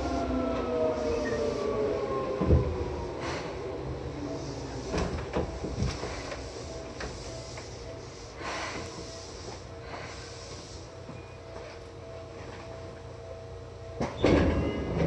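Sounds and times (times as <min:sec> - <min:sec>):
train equipment hum: 0:00.0 - 0:15.0
clunks and rattles: 0:02.3 - 0:02.9, 0:04.8 - 0:07.4, 0:14.0 - 0:15.0
air hissing: 0:04.3 - 0:11.1.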